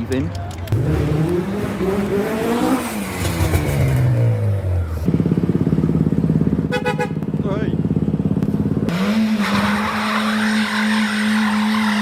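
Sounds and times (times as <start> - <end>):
car engine revving: 0.7 - 12.0.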